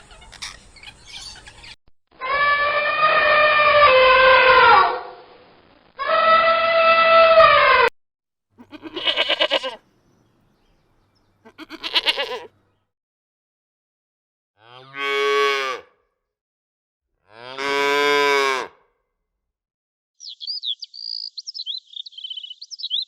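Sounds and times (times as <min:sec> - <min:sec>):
farm animals calling: 0:00.0 - 0:04.8, 0:08.6 - 0:12.8.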